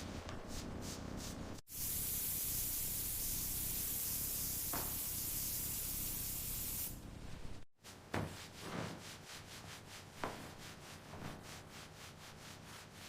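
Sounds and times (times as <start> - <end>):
spray gun hissing: 1.7 - 7.0.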